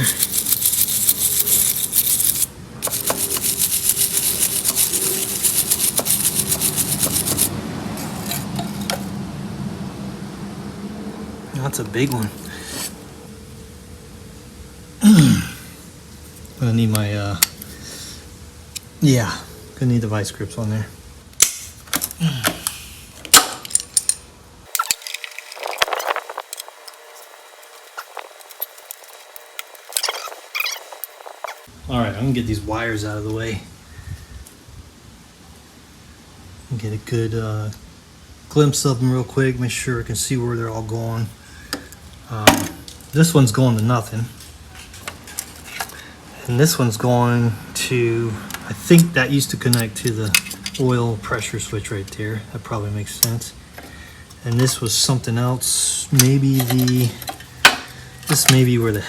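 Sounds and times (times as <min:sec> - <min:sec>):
hand tools clicking on metal: 0:00.0 - 0:09.1, 0:48.5 - 0:51.0, 0:56.1 - 0:59.0
stiff brush scrubbing metal: 0:00.0 - 0:09.1
metal scrape: 0:00.0 - 0:09.2, 0:12.2 - 0:13.0.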